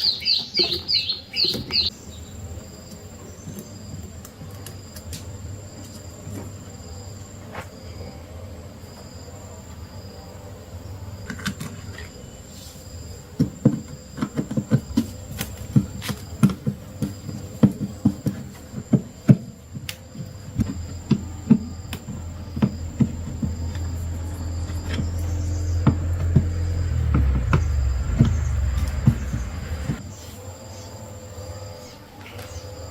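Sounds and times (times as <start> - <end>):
steady low hum: 1.9 - 32.1
sharp taps and knocks: 13.4 - 30.0.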